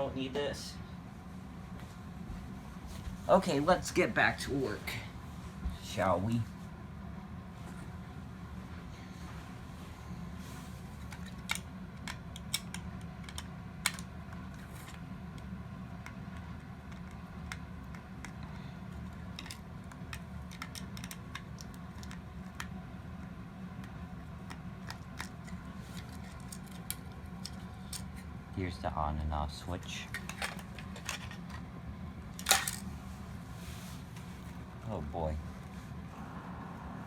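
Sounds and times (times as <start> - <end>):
steady low hum: 0.0 - 37.0
plastic parts clicking: 11.1 - 15.0, 19.4 - 22.7, 30.1 - 31.6, 32.4 - 32.8.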